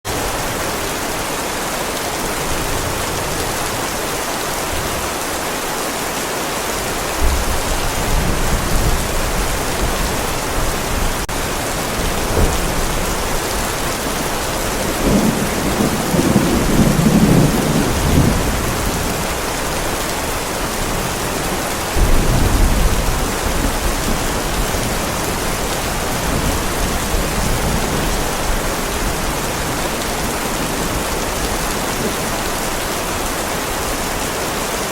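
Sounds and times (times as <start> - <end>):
heavy rain pouring: 0.0 - 34.9
low rolls of thunder: 7.2 - 19.4, 22.0 - 32.2.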